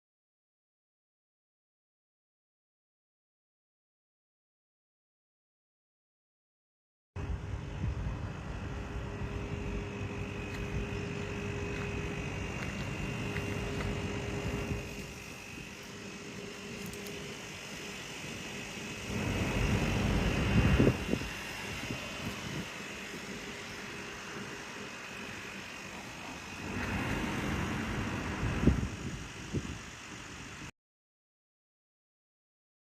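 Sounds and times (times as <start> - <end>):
heater unit whirring hum: 7.2 - 30.7.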